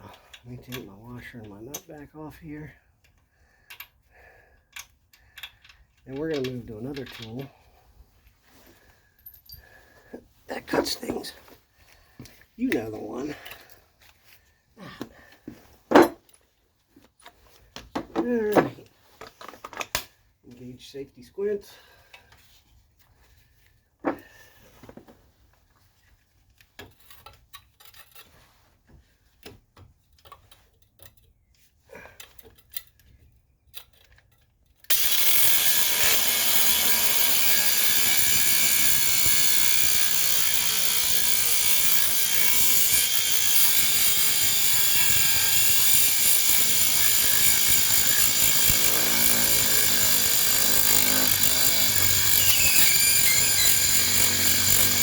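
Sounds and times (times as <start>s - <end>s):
cutoff tool grinding steel: 34.9s - 55.0s.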